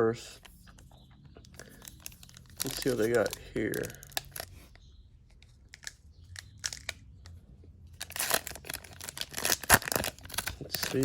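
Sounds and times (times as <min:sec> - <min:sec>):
foil wrapper crinkling and tearing: 0:01.6 - 0:04.6, 0:08.0 - 0:11.0.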